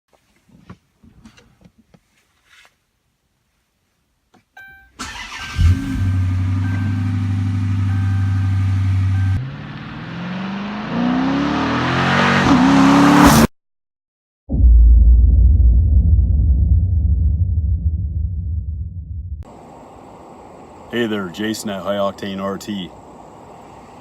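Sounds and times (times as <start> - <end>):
car engine starting and revving: 5.0 - 13.5
short electronic beeps: 6.6 - 7.2, 7.8 - 9.5
deep low rumble: 14.5 - 19.5.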